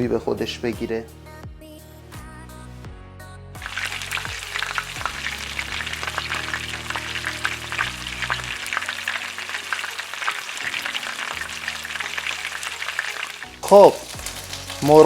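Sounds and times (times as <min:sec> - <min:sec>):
chicken frying in hot oil: 0:03.6 - 0:15.0.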